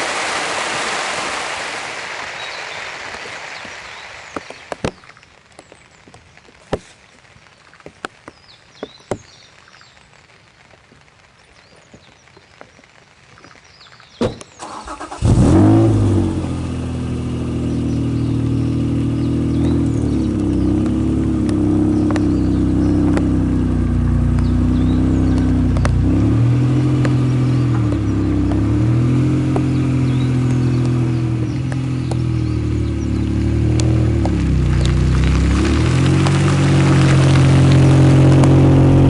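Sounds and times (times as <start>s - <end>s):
car engine starting and idling: 14.6s - 39.0s.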